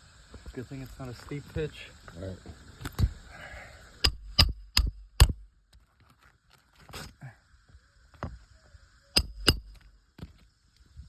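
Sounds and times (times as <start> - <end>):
hammer striking shingle roof: 4.0 - 5.5, 9.2 - 9.9.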